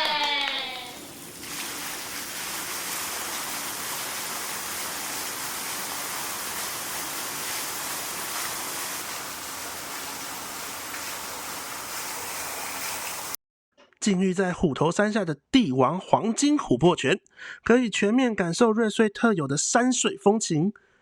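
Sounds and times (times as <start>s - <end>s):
water running into a bath: 0.0s - 13.4s.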